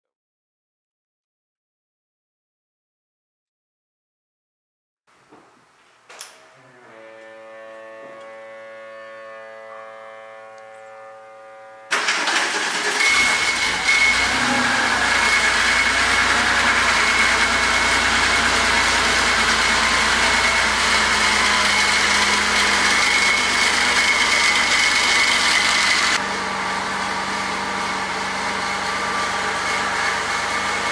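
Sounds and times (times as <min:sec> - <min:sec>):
thin high whine: 0:06.1 - 0:13.4
car engine starting and idling: 0:11.9 - 0:30.9.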